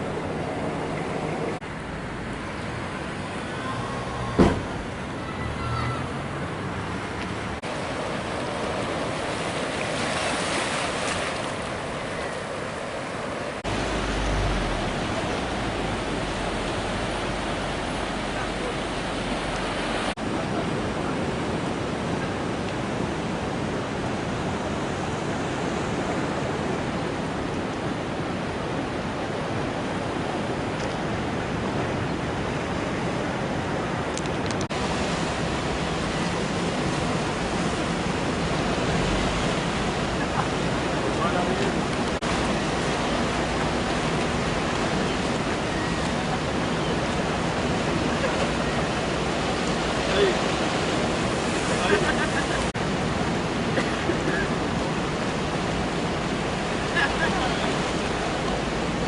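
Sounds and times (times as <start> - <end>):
ocean surf washing on beach: 0.0 - 59.0
steady rushing noise: 6.1 - 59.0
low rumble: 13.6 - 19.7.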